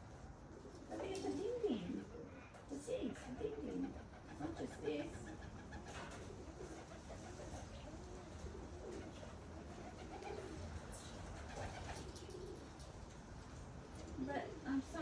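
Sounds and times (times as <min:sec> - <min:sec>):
pigeons cooing: 0:03.4 - 0:12.8.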